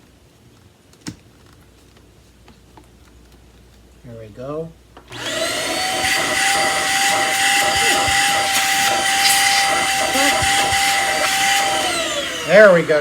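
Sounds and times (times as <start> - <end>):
vacuum cleaner running: 5.1 - 13.0.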